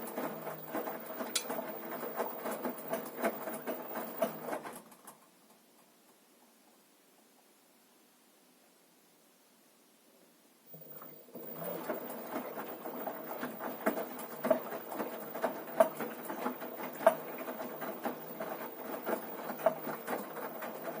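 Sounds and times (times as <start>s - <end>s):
washing machine clatter: 0.0s - 5.3s, 10.7s - 21.0s.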